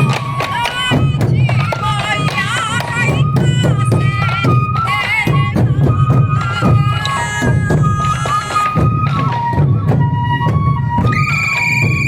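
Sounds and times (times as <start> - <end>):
bamboo flutes playing melody: 0.0 - 12.0
taiko drums beating: 0.0 - 12.0.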